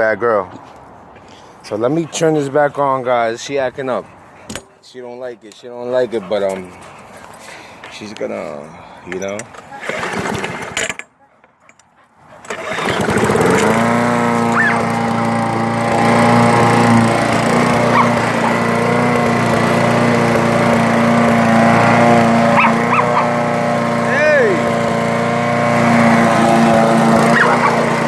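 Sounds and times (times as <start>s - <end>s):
lawn mower engine running: 9.3s - 11.0s, 12.4s - 28.0s
dog barking: 14.5s - 14.8s, 17.9s - 18.6s, 22.6s - 23.3s, 27.3s - 27.8s.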